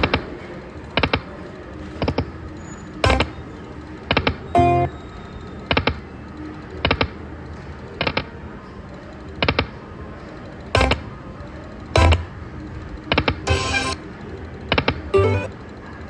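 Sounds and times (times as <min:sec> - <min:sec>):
slot machine background music: 0:03.0 - 0:03.5, 0:04.6 - 0:05.0, 0:10.8 - 0:11.2, 0:12.0 - 0:12.6, 0:13.5 - 0:14.0, 0:15.2 - 0:15.6
slot machine clicks: 0:03.0 - 0:03.6, 0:04.2 - 0:05.0, 0:10.7 - 0:14.1, 0:14.8 - 0:15.8.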